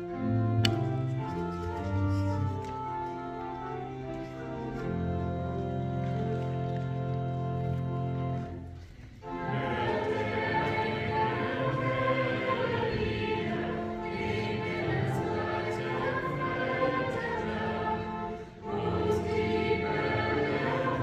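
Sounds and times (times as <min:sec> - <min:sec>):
organ: 0:00.0 - 0:21.0
choir singing: 0:09.2 - 0:21.0.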